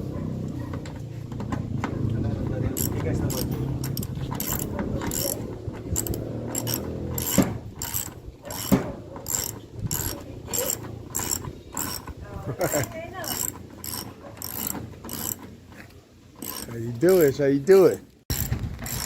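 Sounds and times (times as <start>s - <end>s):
hand tool clicking strokes: 2.8s - 15.5s, 16.4s - 17.3s.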